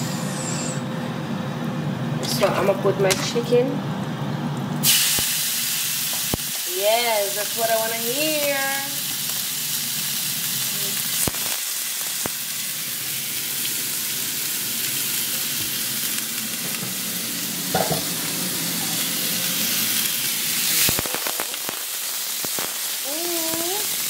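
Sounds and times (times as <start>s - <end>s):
chicken sizzling in oil: 4.8s - 24.0s.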